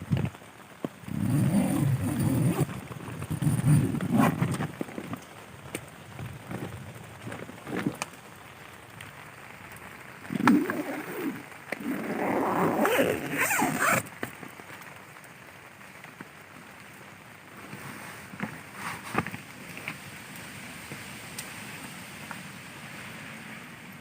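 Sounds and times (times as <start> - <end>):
rain hissing on tent: 0.0 - 24.0
tent zipper being pulled: 1.0 - 5.2, 6.5 - 8.0, 10.2 - 14.1, 17.6 - 19.3.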